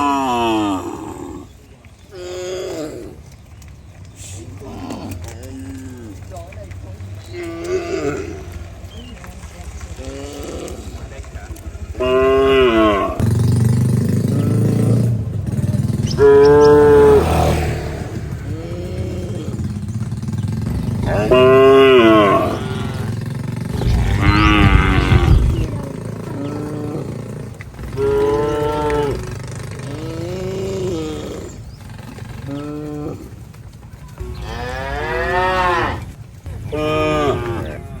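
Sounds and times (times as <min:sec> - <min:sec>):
cattle mooing: 0:12.0 - 0:13.2, 0:16.2 - 0:17.6, 0:21.1 - 0:23.1, 0:23.7 - 0:25.8, 0:34.2 - 0:36.1
low engine hum: 0:23.6 - 0:28.5.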